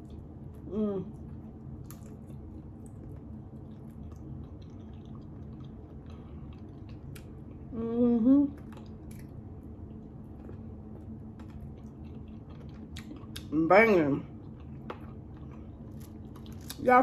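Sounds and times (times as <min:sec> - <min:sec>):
person chewing fried chicken: 0:00.0 - 0:07.7, 0:08.6 - 0:13.5, 0:14.3 - 0:16.9.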